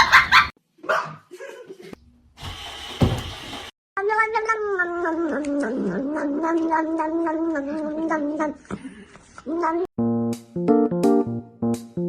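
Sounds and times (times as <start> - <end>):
burst of noise with thump: 2.4 - 3.5.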